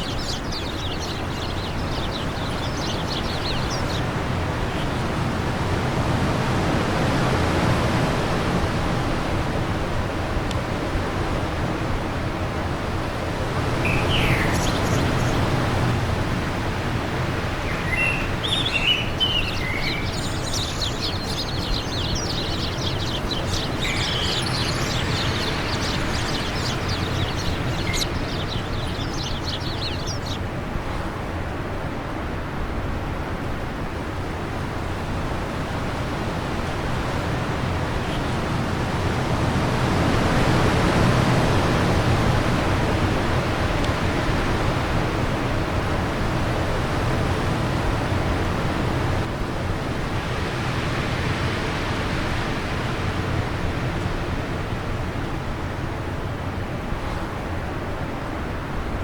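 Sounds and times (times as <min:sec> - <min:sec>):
small birds chirping and trilling: 0:00.0 - 0:07.4, 0:13.2 - 0:30.5, 0:36.6 - 0:42.6
wind: 0:00.0 - 0:59.0.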